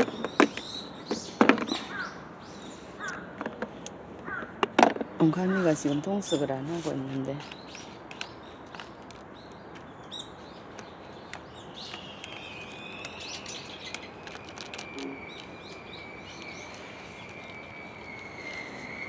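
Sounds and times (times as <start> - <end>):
faint outdoor background noise: 0.0 - 19.0
wild birds chirping: 0.0 - 19.0
thin steady high tone: 12.0 - 19.0.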